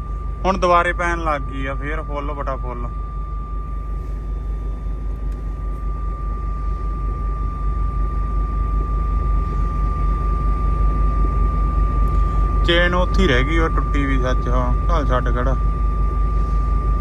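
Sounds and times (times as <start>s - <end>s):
thin high whine: 0.0s - 17.0s
truck engine rumble from inside cab: 0.0s - 17.0s.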